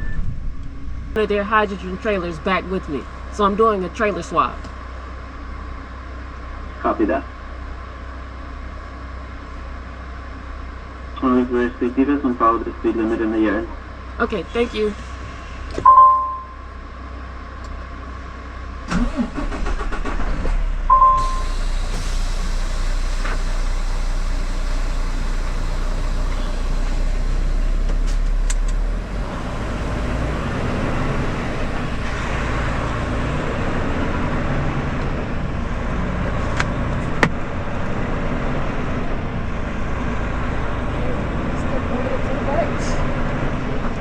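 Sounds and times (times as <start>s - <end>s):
short electronic beep: 0.0s - 0.3s, 15.8s - 16.7s, 20.9s - 21.5s
truck diesel engine running: 0.0s - 44.0s.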